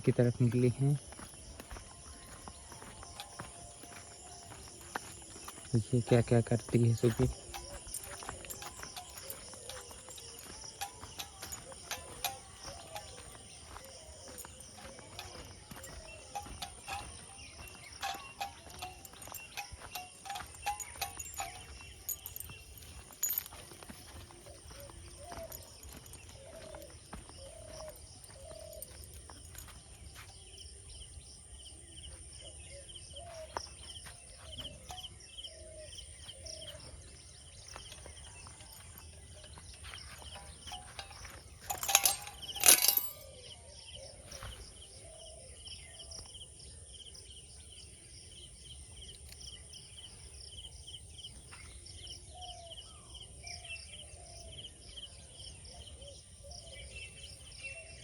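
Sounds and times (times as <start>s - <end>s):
birds calling: 0.0s - 46.3s.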